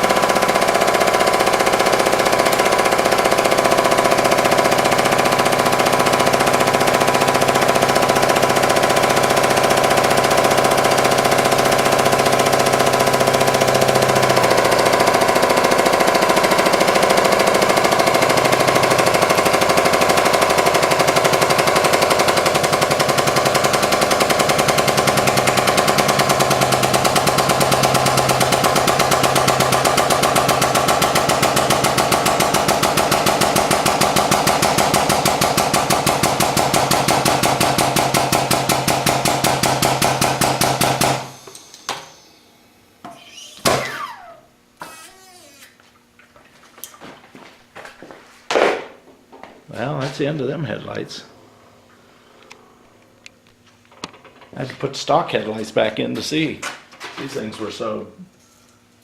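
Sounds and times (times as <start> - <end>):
hydraulic press pulsing: 0.0 - 45.8.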